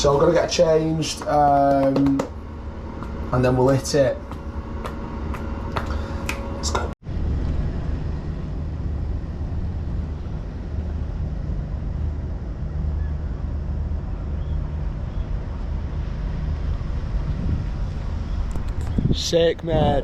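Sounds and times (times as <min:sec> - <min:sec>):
boat engine rumbling: 0:00.0 - 0:20.0
wind noise on microphone: 0:07.0 - 0:20.0.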